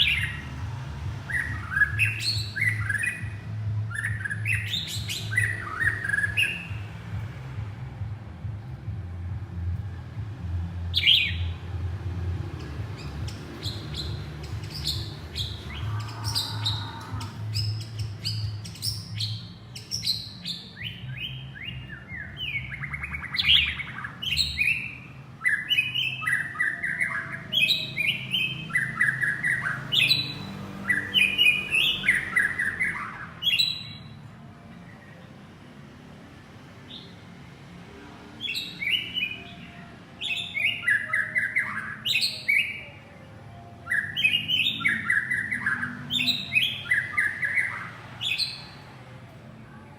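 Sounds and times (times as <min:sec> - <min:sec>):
bird whistling and chirping: 0:01.3 - 0:06.8, 0:10.9 - 0:11.5, 0:13.0 - 0:30.3, 0:30.9 - 0:34.2, 0:38.5 - 0:42.9, 0:43.8 - 0:48.8.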